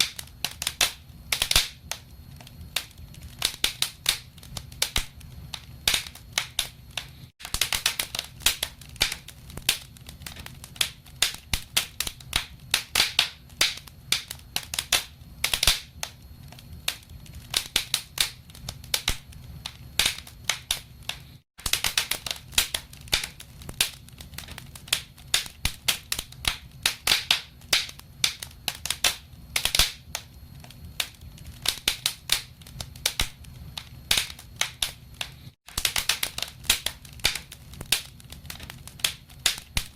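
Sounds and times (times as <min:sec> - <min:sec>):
fire pops and snaps: 0:00.0 - 0:39.9
low rumble of flames: 0:00.0 - 0:39.9.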